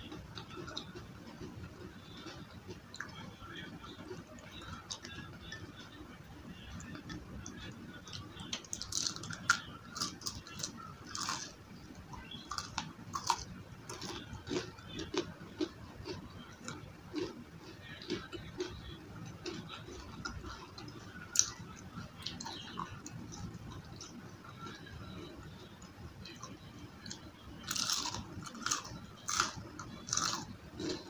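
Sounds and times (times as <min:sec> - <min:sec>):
crunching of fried onion rings: 0:06.6 - 0:31.0.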